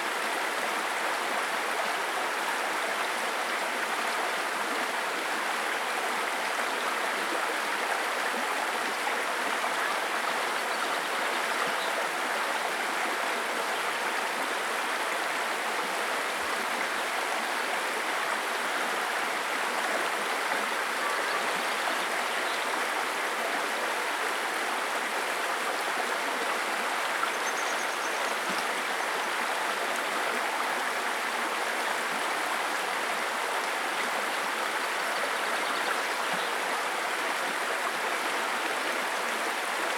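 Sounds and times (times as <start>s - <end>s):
stream water running: 0.0s - 39.9s.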